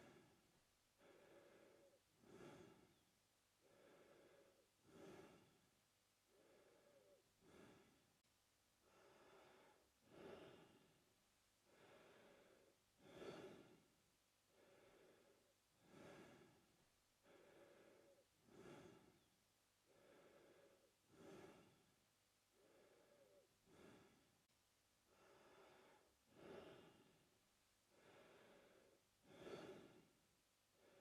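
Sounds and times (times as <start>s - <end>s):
man breathing through mouth: 1.0s - 3.0s, 3.6s - 5.6s, 6.3s - 8.0s, 8.8s - 10.9s, 11.7s - 13.9s, 14.5s - 19.3s, 19.9s - 21.9s, 22.5s - 24.3s, 25.1s - 27.2s, 27.9s - 30.1s.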